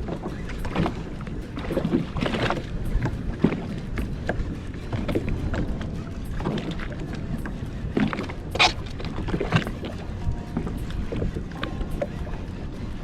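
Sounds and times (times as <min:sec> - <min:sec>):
small waves slapping hull: 0:00.0 - 0:13.0
wind rumble on microphone: 0:00.0 - 0:13.0.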